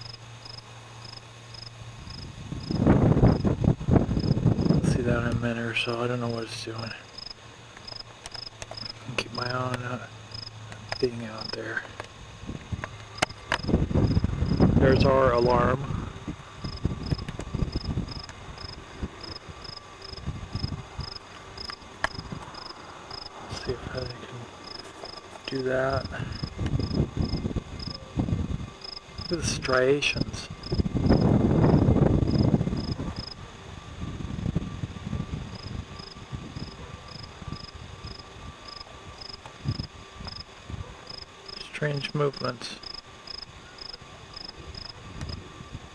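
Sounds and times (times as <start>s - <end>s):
cricket chirping: 0.0s - 15.4s, 16.3s - 33.5s, 35.2s - 45.5s
wind rumble on microphone: 1.9s - 5.8s, 12.3s - 24.6s, 25.5s - 41.2s, 44.3s - 45.9s.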